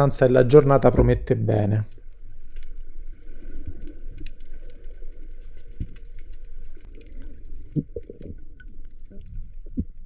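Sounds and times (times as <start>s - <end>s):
low rumble of moving water: 0.0s - 10.0s
crackle of small sharp clicks: 3.7s - 10.0s.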